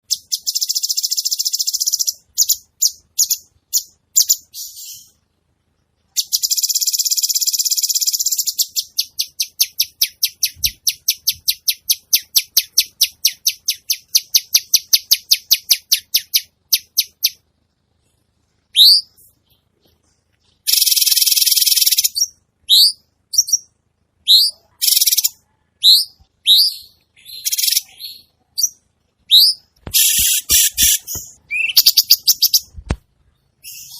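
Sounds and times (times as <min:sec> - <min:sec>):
songbird buzzy chattering trills: 0:06.1 - 0:17.4, 0:20.5 - 0:23.7, 0:26.0 - 0:32.8
short rising chirps: 0:29.3 - 0:32.7
songbird quick sharp notes: 0:29.4 - 0:32.8.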